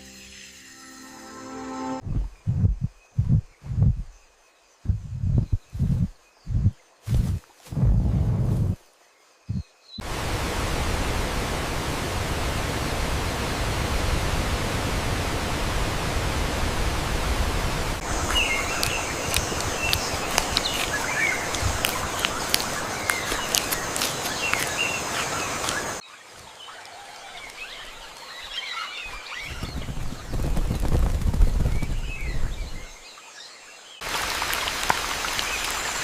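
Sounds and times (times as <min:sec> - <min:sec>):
birds chirping: 0:01.9 - 0:07.4, 0:09.2 - 0:10.1, 0:15.8 - 0:34.1
steady rushing noise: 0:10.0 - 0:26.0.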